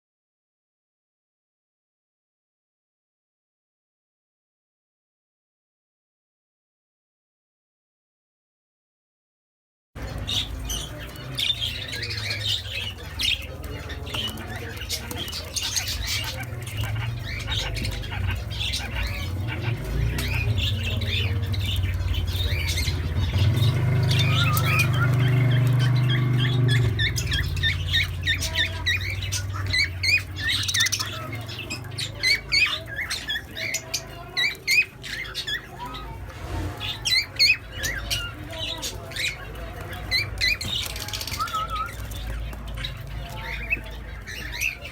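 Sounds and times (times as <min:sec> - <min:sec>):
birds chirping and squawking: 0:10.0 - 0:44.9.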